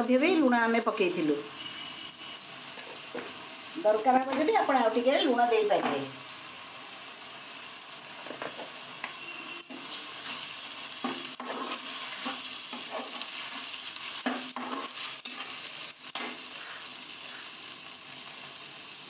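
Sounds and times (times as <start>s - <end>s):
onion paste sizzling in oil: 0.0s - 19.0s
spatula scraping pan: 9.6s - 17.5s.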